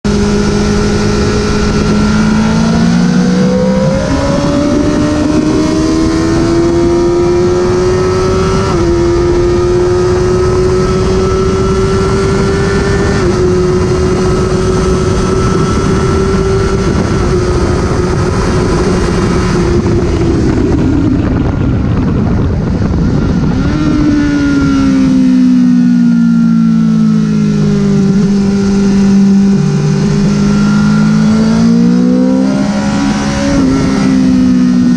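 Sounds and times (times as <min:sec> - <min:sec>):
heavy rush of noise: 0:11.8 - 0:25.8.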